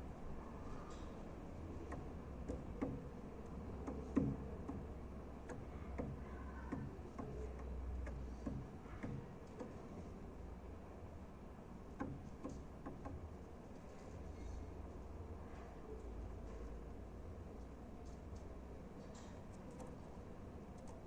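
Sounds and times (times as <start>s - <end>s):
bird bill tapping: 1.8s - 9.8s, 12.0s - 13.2s.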